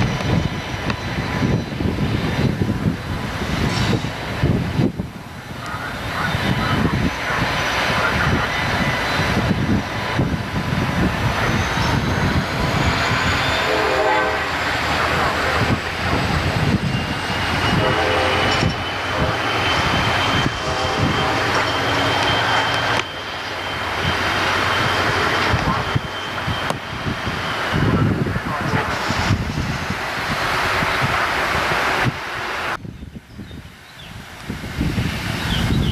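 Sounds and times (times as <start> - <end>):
train wheels roaring on rails: 0.0 - 35.9
thin high whine: 11.2 - 29.9.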